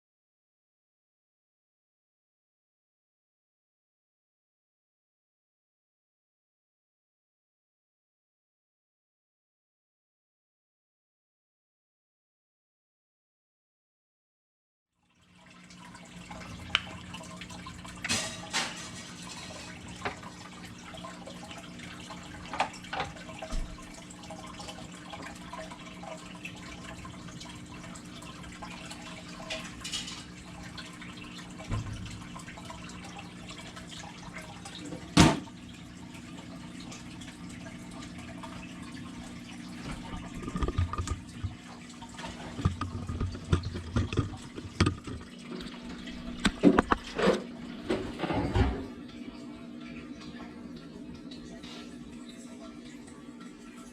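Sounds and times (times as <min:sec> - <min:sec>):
aquarium water trickling: 0:15.0 - 0:53.9
sharp knocks or splashes: 0:35.1 - 0:35.6.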